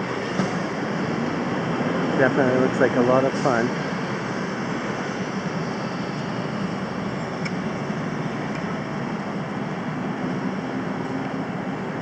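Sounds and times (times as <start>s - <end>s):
vehicle running rumble: 0.0s - 12.0s.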